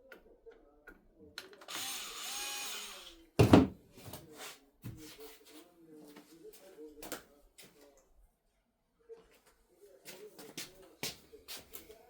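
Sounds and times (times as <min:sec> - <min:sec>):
electric screwdriver running: 0:01.7 - 0:03.2.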